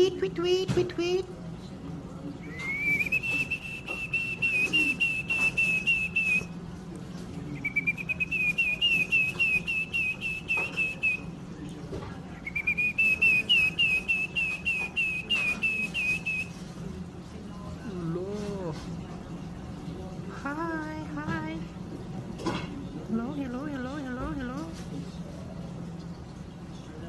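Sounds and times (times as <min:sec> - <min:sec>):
person whistling warbling call: 0:02.4 - 0:06.5, 0:07.6 - 0:11.2, 0:12.4 - 0:16.5.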